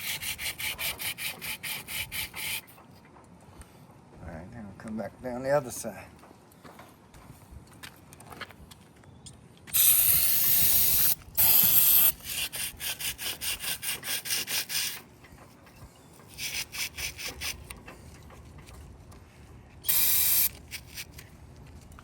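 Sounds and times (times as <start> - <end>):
brush scrubbing metal: 0.0 - 2.7, 11.0 - 15.1, 16.3 - 18.2
hissing spray bursts: 9.7 - 15.0, 19.9 - 20.6.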